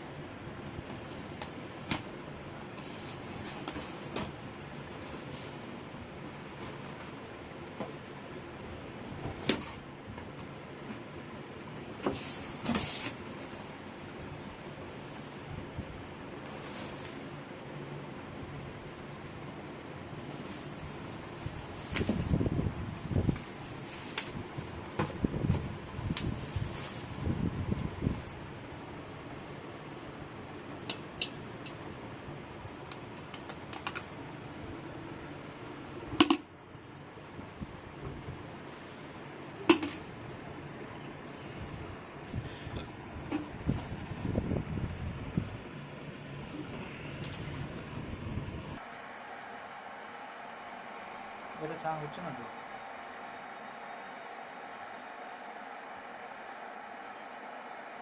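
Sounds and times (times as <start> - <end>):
fan hum: 0.0 - 58.0
packaging scraping and rustling: 12.0 - 15.5, 20.2 - 22.3, 23.2 - 27.3.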